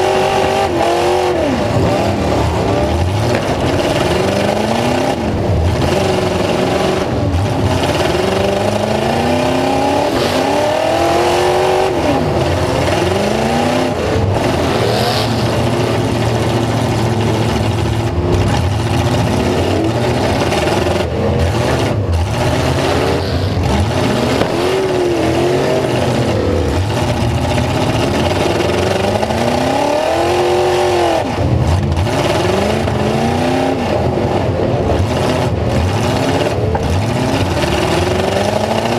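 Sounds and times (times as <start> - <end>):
truck engines revving: 0.0 - 38.9.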